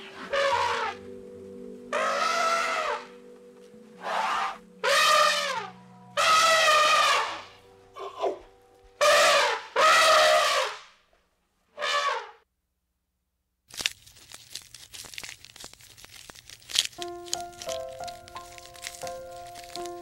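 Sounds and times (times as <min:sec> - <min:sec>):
soft background music: 0:00.0 - 0:09.8, 0:16.8 - 0:20.0
animal calling loudly: 0:00.1 - 0:01.0, 0:01.9 - 0:03.2, 0:04.0 - 0:08.4, 0:09.0 - 0:10.8.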